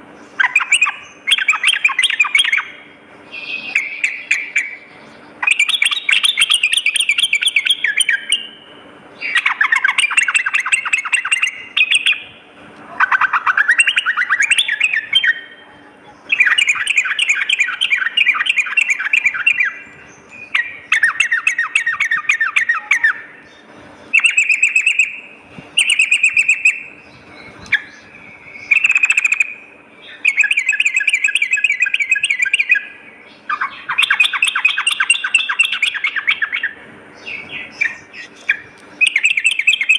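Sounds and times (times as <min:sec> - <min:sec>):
bird bubbling chatter: 0:00.3 - 0:08.6, 0:09.2 - 0:12.3, 0:12.9 - 0:39.9.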